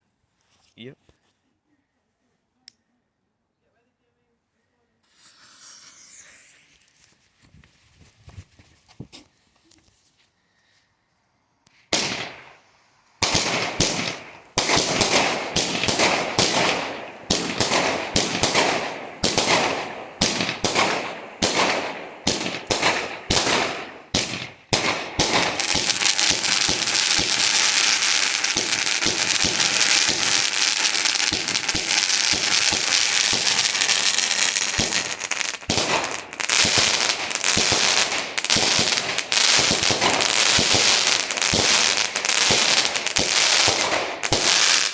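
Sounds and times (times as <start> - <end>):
firework shots: 5.0 - 7.0, 11.9 - 44.9
firework crackling: 5.0 - 7.4, 11.8 - 44.9.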